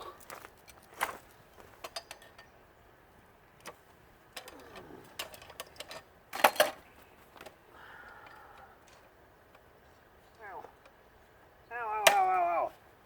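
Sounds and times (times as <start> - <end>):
metal tools clanking on metal: 1.8 - 2.5, 4.4 - 6.8.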